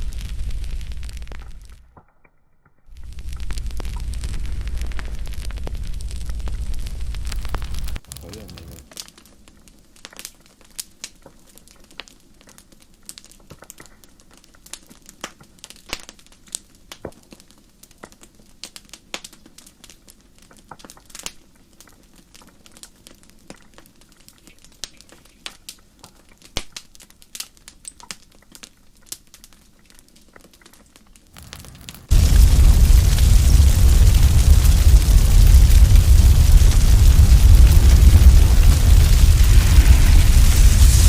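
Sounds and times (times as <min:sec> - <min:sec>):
campfire crackling: 0:00.0 - 0:01.8, 0:02.9 - 0:16.7, 0:26.4 - 0:41.0.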